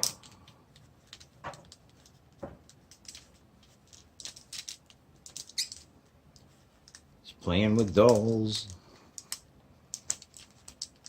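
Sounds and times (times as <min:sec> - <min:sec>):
plastic figure limbs clicking: 0:00.0 - 0:07.1, 0:07.8 - 0:11.0.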